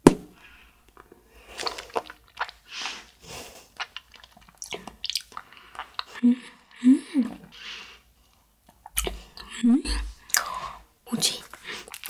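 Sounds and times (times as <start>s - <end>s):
chewing gummy candy: 1.4s - 6.3s, 11.2s - 12.0s.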